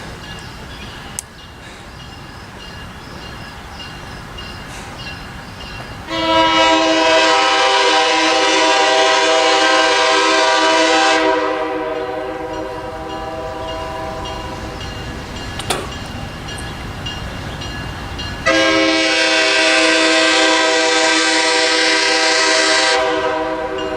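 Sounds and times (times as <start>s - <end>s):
passing train rumbling: 0.0s - 23.9s
train horn blast: 6.1s - 14.8s, 18.4s - 23.9s.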